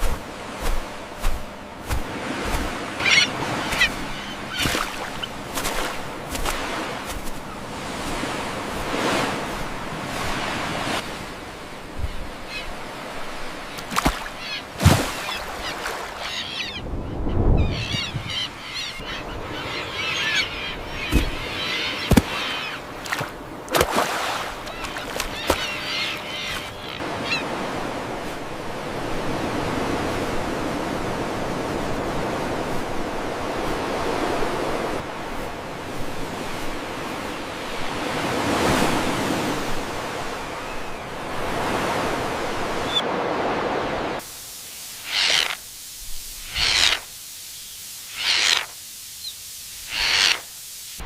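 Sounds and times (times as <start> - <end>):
steady rushing noise: 0.0 - 3.0.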